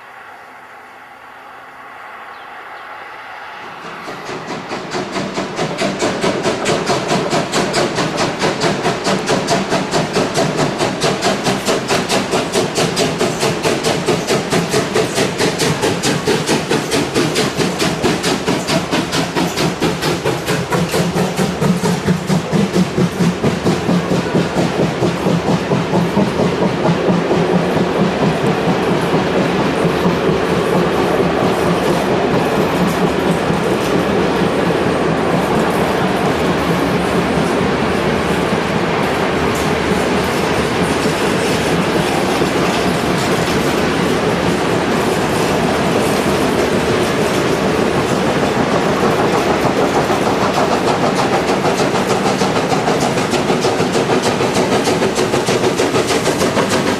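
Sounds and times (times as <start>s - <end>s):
steam locomotive exhaust beats: 0.0s - 56.9s.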